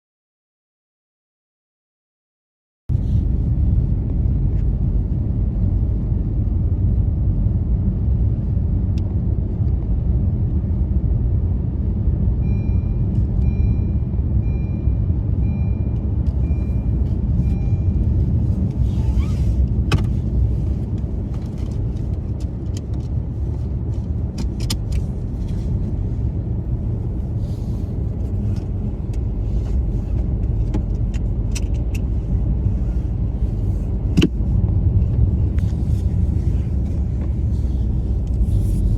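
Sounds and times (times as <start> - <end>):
car driving on snowy roads: 2.9 - 38.9
high beeps: 12.4 - 18.2.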